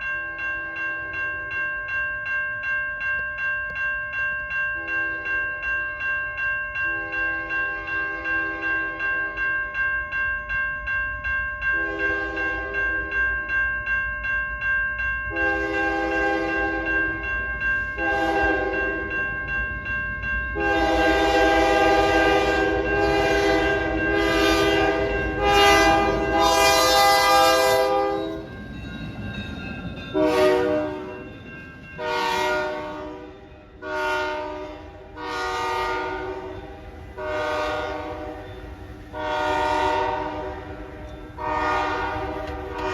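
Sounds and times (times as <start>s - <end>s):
crossing warning bell ringing: 0.0s - 42.9s
train passing: 0.0s - 42.9s
locomotive air horn blasts: 11.8s - 12.8s, 15.3s - 17.0s, 18.0s - 19.1s, 20.6s - 28.4s, 30.2s - 31.2s, 32.0s - 38.5s, 39.1s - 42.9s.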